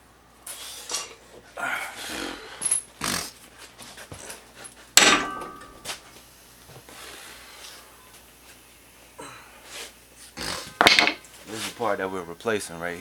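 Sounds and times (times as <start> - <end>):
metal tool clank ringing: 5.0 - 5.8.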